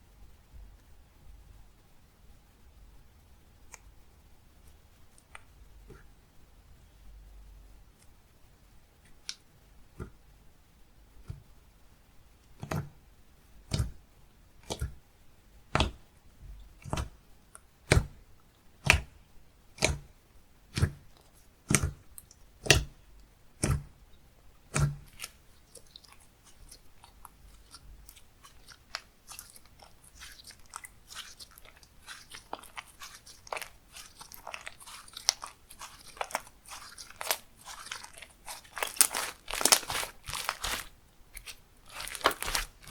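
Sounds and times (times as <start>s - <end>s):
slime crackling squish: 24.7s - 42.9s
slime popping: 24.7s - 42.9s.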